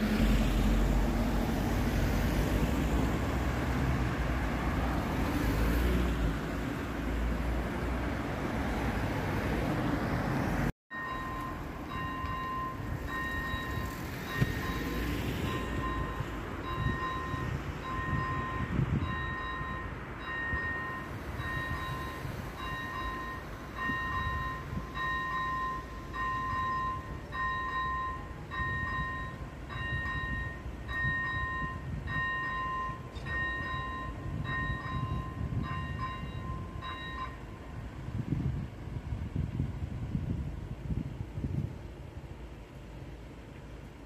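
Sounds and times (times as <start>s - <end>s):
level crossing warning bell ringing: 10.9s - 38.0s.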